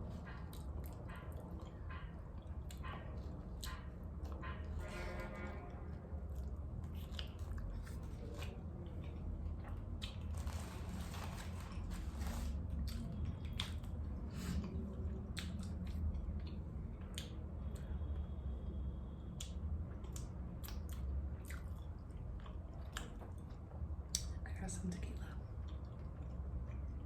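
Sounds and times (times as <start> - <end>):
person chewing food: 0.0 - 4.9, 6.2 - 17.9, 19.4 - 24.4, 25.4 - 27.0
crunch of food: 6.3 - 14.0.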